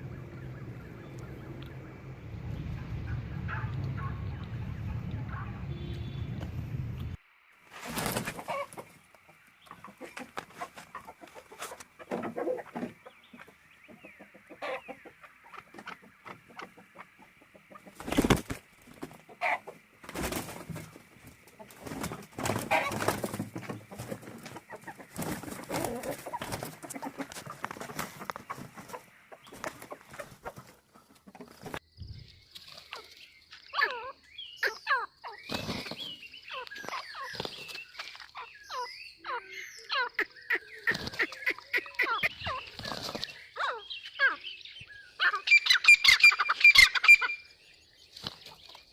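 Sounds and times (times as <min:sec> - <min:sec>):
wings flapping: 0:07.7 - 0:09.0, 0:17.7 - 0:31.8, 0:35.4 - 0:36.2, 0:36.8 - 0:38.3, 0:40.8 - 0:41.7, 0:42.4 - 0:43.4
rooster clucking: 0:07.8 - 0:31.8
high chirping calls: 0:12.3 - 0:18.5, 0:21.3 - 0:48.9.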